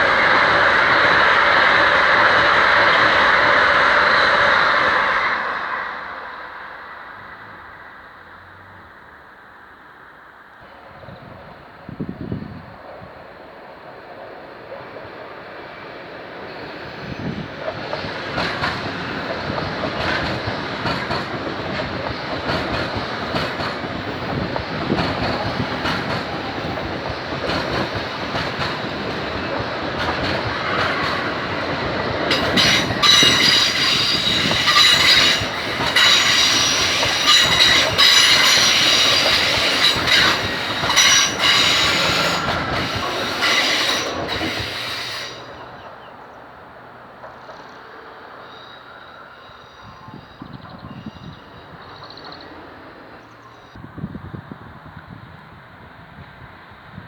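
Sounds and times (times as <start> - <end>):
train wheels clicking on rails: 0.0 - 7.7, 10.6 - 53.8
train wheels squealing: 10.7 - 46.6, 47.2 - 53.8.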